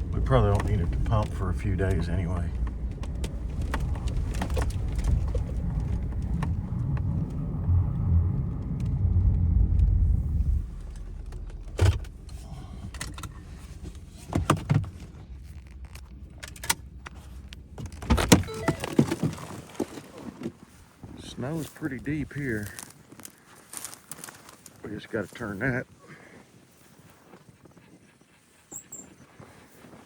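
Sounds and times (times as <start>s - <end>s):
truck engine rumbling: 0.0s - 19.7s
sharp clunks and knocks: 10.9s - 15.2s.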